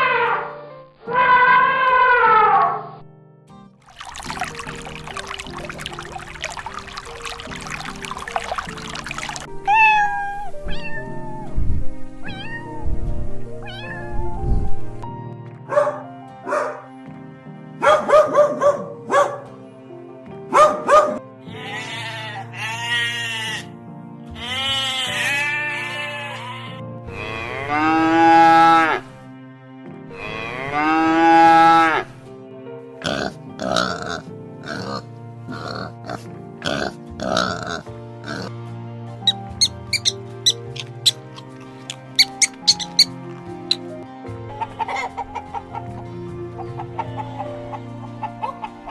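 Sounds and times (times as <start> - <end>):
rushing pouring noise: 3.8 - 10.1
cat meowing: 9.6 - 11.5, 12.2 - 13.0, 13.6 - 14.5, 21.5 - 23.7, 24.4 - 26.8
cow mooing: 25.3 - 29.0, 30.2 - 32.1.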